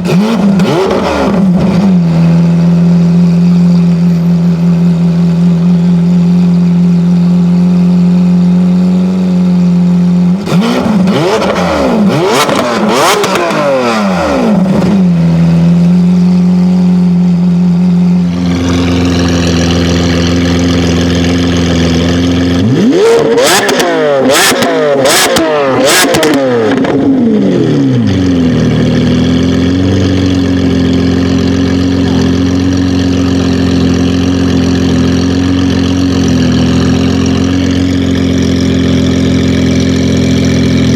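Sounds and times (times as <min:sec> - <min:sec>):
car engine idling and revving: 0:00.0 - 0:40.9
exhaust cracks: 0:18.3 - 0:40.9.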